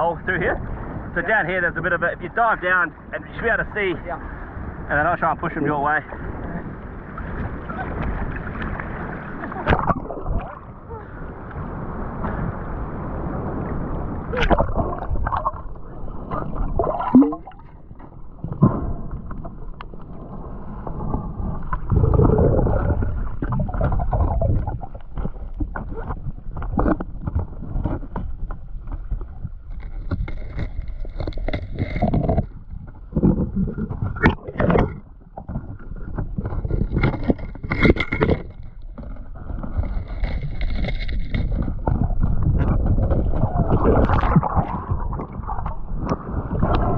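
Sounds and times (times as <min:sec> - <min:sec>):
water sloshing underwater: 0:00.0 - 0:46.9
knocks and scrapes: 0:14.3 - 0:20.2, 0:20.8 - 0:46.9.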